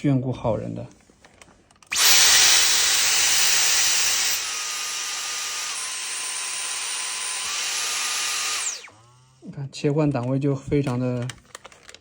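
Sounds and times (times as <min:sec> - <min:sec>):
cordless vacuum motor whining: 0:01.9 - 0:09.3.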